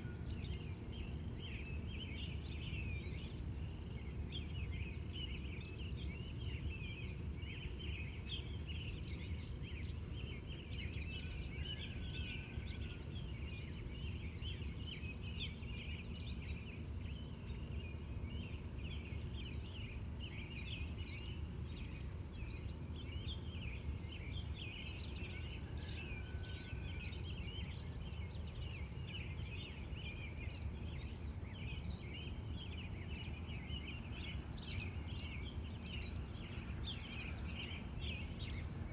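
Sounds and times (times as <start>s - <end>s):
crickets chirping: 0.0s - 38.9s
high insect trill: 0.0s - 38.9s.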